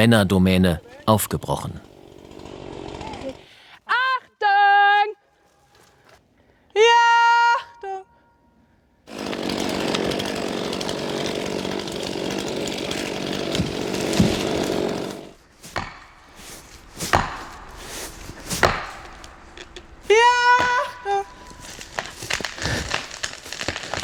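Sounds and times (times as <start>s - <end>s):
chainsaw cutting into tree: 1.4s - 3.5s, 9.1s - 24.0s
sharp wood cracks: 9.1s - 24.0s.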